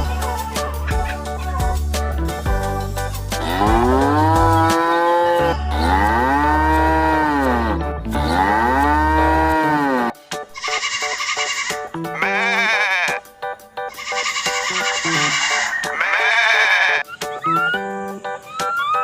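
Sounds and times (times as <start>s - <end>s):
background music with low bass: 0.0s - 19.0s
cow mooing: 3.4s - 10.1s, 14.4s - 17.0s.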